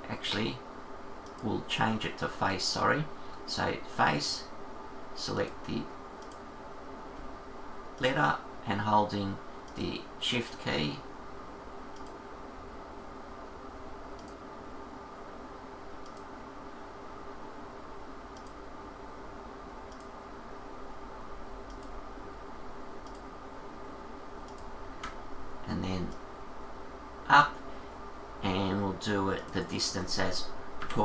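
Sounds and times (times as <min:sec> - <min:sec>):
steady low hum: 0:00.0 - 0:31.0
faint computer mouse clicks: 0:01.2 - 0:01.5, 0:06.2 - 0:06.4, 0:11.9 - 0:12.2, 0:14.2 - 0:14.4, 0:16.0 - 0:16.3, 0:18.4 - 0:18.6, 0:19.9 - 0:20.2, 0:21.7 - 0:22.0, 0:23.0 - 0:23.3, 0:24.4 - 0:25.2.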